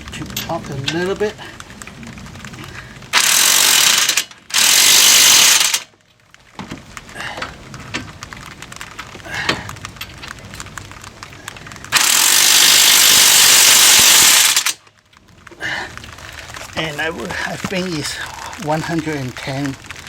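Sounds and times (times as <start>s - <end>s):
impact wrench running: 3.1s - 5.9s, 11.9s - 14.8s.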